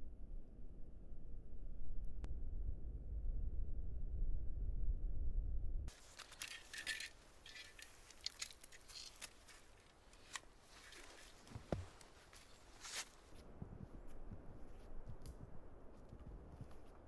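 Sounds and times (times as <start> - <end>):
wind rumble on microphone: 0.0 - 6.0, 13.2 - 17.0
clicks and clinks of gear handled: 5.9 - 13.4.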